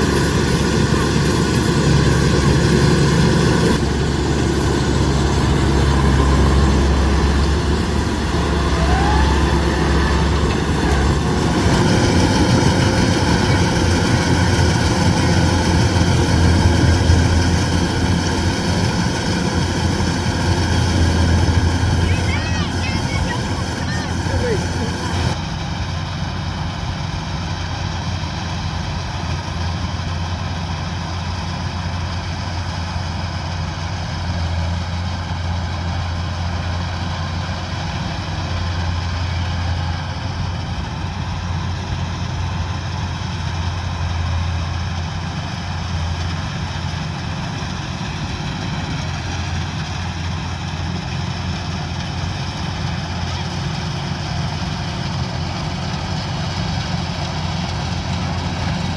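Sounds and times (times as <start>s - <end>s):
diesel engine droning: 0.0s - 58.9s.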